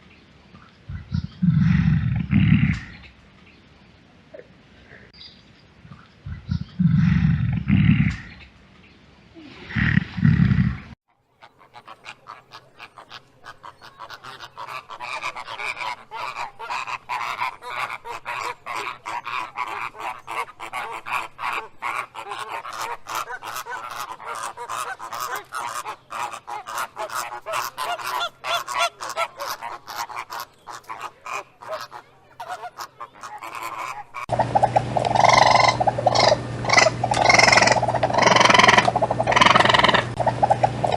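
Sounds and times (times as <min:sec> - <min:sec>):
loud low animal calls: 0:00.9 - 0:03.1, 0:06.3 - 0:08.4, 0:09.4 - 0:40.9
loud animal sound: 0:01.2 - 0:03.1, 0:09.4 - 0:40.9
flock of birds honking: 0:11.7 - 0:40.9.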